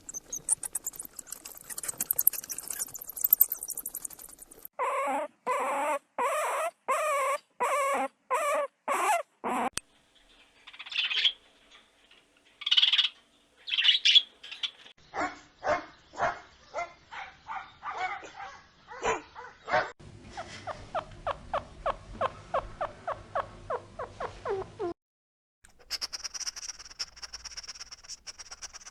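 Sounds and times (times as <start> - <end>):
animal hissing bursts: 25.7 - 28.9
quick sharp animal calls: 25.7 - 28.9
short pitched animal calls: 25.8 - 28.9.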